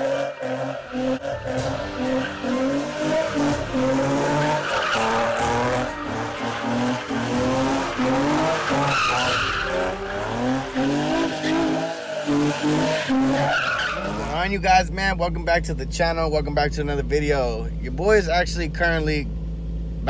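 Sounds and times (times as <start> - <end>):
tyres squealing: 0.0 - 14.4
car engine revving: 0.0 - 16.0.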